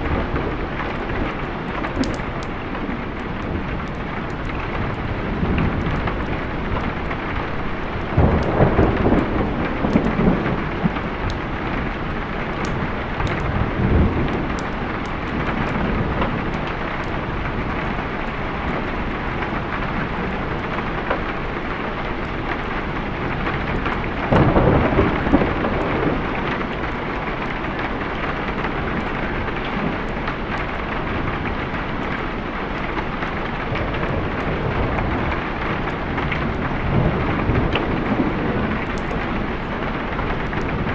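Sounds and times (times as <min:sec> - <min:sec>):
heavy rain: 0:00.0 - 0:40.9
thunder rumbling: 0:00.0 - 0:40.9.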